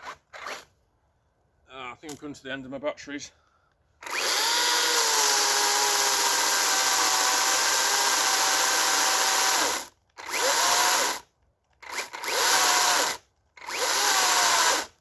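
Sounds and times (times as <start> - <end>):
cordless chainsaw motor whine: 4.0 - 15.0.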